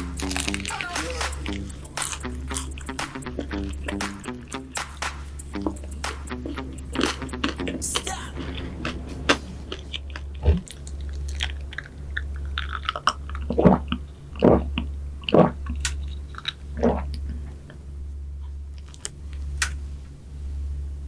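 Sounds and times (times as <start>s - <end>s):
crunchy bites and chewing: 0.0s - 3.0s, 9.7s - 17.4s
steady low hum: 0.0s - 21.0s.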